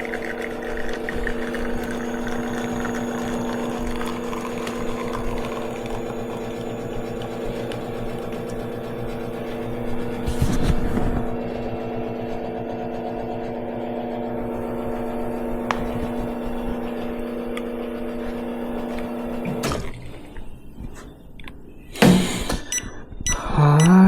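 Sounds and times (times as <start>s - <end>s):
espresso machine pump humming: 0.0s - 20.3s
loud clunk: 22.0s - 22.7s.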